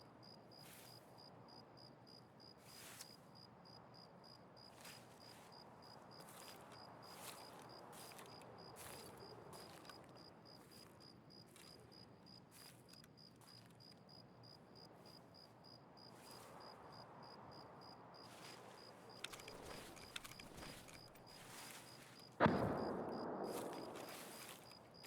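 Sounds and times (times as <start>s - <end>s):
cricket chirping: 0.0s - 25.0s
faint clicks: 19.2s - 21.4s.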